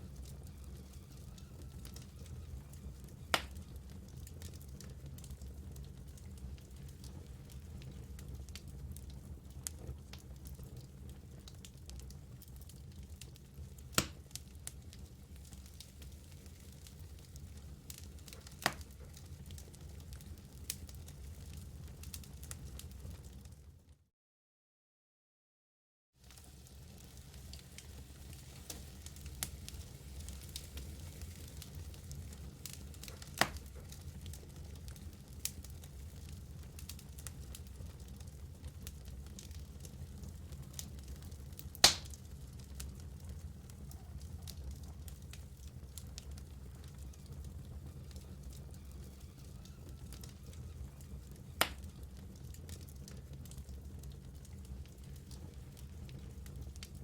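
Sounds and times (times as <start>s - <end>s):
fire crackling and popping: 0.0s - 23.7s, 26.2s - 57.0s
fire flames rumbling: 0.0s - 23.8s, 26.2s - 57.0s
loud sharp fire pop: 41.8s - 42.2s.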